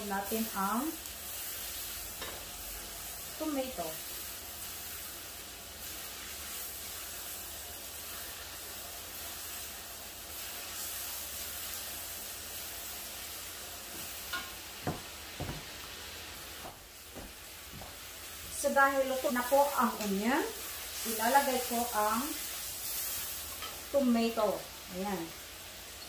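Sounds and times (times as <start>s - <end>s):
meat sizzling in a wok: 0.0s - 26.0s.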